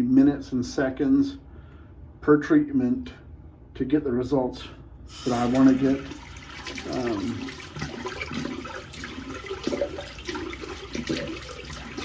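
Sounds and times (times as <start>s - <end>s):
water splashing in a sink: 5.1s - 12.0s.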